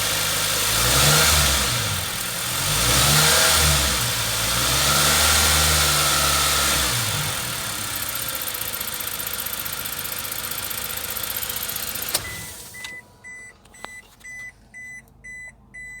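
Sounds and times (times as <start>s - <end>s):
engine running: 0.0s - 14.3s
engine switch-off click: 11.7s - 15.3s
dashboard warning chime beeping: 12.0s - 16.0s.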